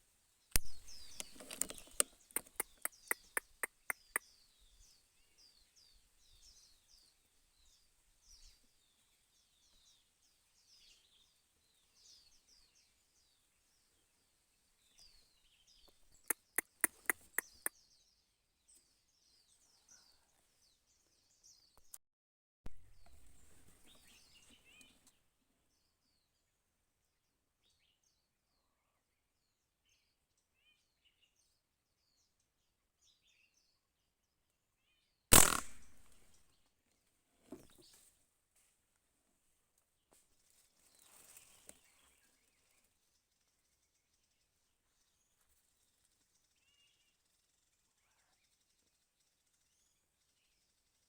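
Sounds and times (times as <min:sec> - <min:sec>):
small birds chirping: 0:00.4 - 0:22.0, 0:22.7 - 0:36.6, 0:39.8 - 0:51.0
quick clicks: 0:00.6 - 0:04.2, 0:16.3 - 0:17.7, 0:35.3 - 0:36.3
rustle: 0:04.4 - 0:15.9, 0:36.9 - 0:48.8
loud gunshot: 0:35.3 - 0:36.2.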